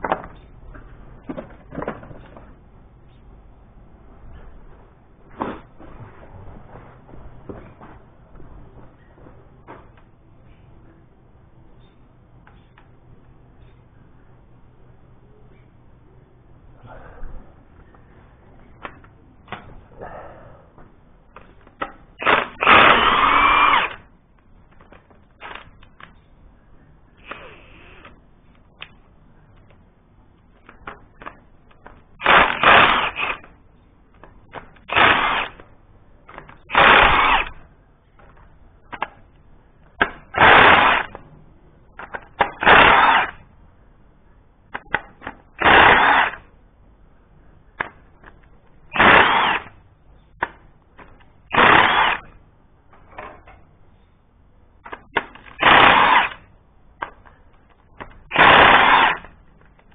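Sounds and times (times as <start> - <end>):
power tool bursts: 22.2 - 24.0, 32.2 - 33.4, 34.8 - 35.6, 36.7 - 37.6, 40.3 - 41.1, 42.5 - 43.4, 45.6 - 46.4, 48.9 - 49.7, 51.5 - 52.3, 55.5 - 56.4, 58.3 - 59.3.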